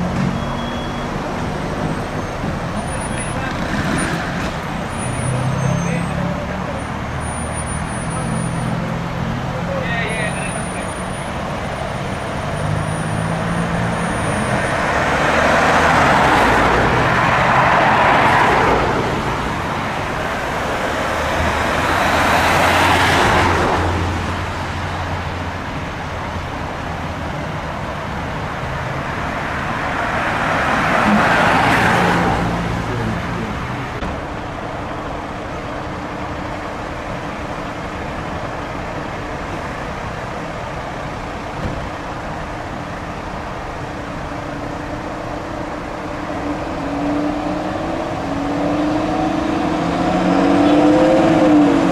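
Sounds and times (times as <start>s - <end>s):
vehicles passing: 0.0s - 51.9s.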